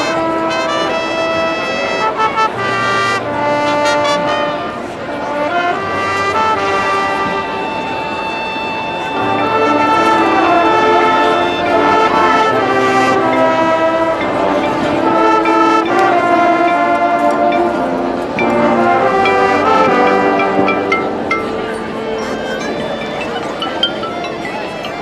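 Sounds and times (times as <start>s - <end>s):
marching band brass chords: 0.0s - 24.4s.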